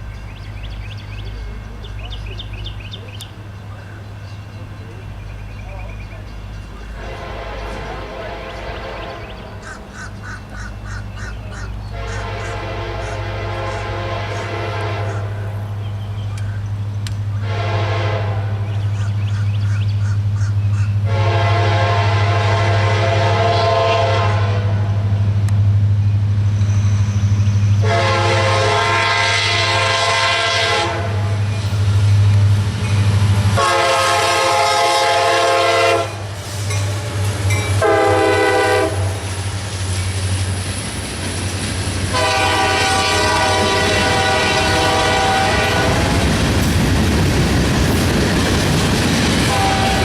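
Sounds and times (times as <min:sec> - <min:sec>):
diesel engines droning: 0:00.0 - 0:50.0
locomotive air horn blasts: 0:06.9 - 0:09.5, 0:11.9 - 0:15.6, 0:17.4 - 0:18.8, 0:21.0 - 0:25.1, 0:27.8 - 0:31.4, 0:33.6 - 0:39.2, 0:42.1 - 0:46.3, 0:49.4 - 0:50.0.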